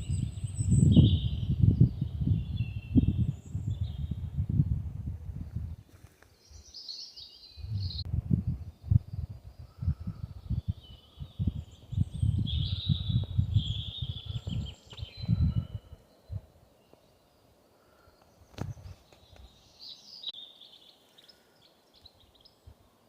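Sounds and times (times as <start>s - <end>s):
songbirds singing: 0.0s - 4.8s, 5.4s - 23.0s
wind buffeting microphone: 0.0s - 6.8s, 7.5s - 16.7s, 18.3s - 19.7s.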